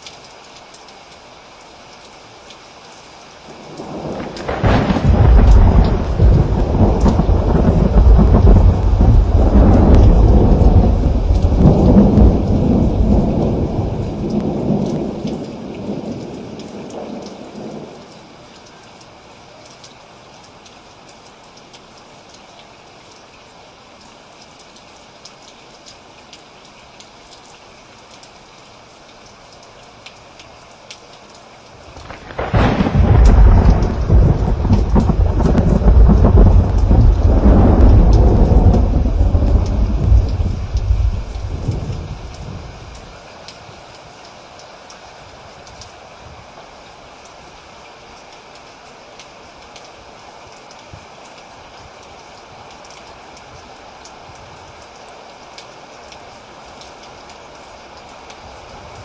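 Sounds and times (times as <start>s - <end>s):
steady rain: 0.0s - 59.0s
thunder rumbling: 3.6s - 18.0s, 31.9s - 43.1s.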